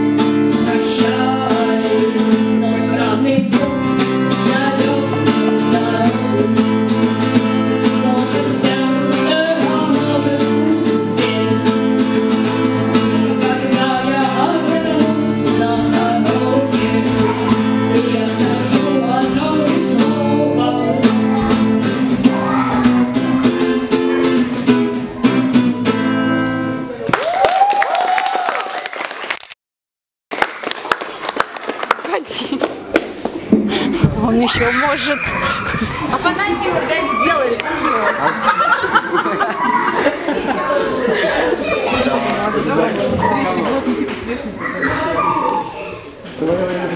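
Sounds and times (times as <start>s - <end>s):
person singing: 0.0s - 24.4s
strummed acoustic guitars: 0.0s - 27.0s.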